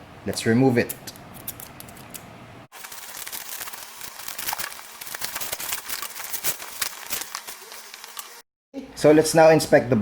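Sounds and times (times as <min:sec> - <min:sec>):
bubble wrap crinkling: 0:02.7 - 0:08.4.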